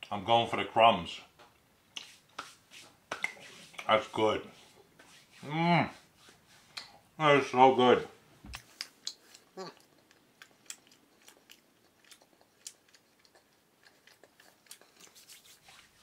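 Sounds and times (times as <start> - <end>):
wet mouth clicks and smacks: 8.5 - 15.4.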